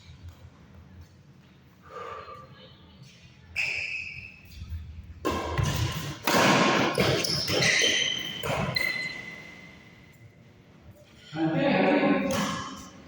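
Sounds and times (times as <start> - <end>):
sneakers squeaking on floor: 3.0 - 4.8, 5.4 - 10.0
shuttlecock hits: 5.2 - 7.6.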